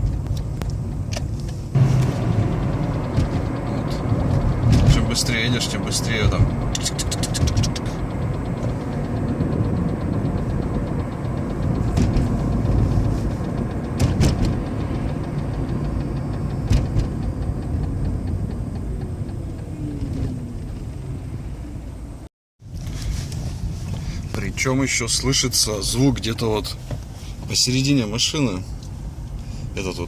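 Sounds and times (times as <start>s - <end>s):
sharp clicks: 0.0s - 21.0s
car road noise in cabin: 0.0s - 30.0s
rapid rhythmic ticking knock: 1.7s - 20.6s.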